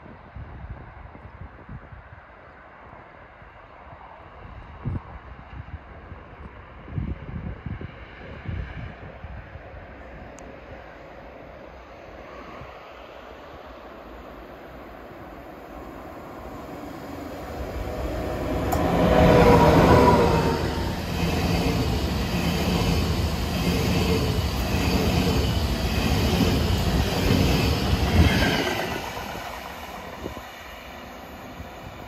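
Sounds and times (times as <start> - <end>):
electric train passing: 10.7 - 32.0
wheels rumbling on rails: 15.0 - 32.0.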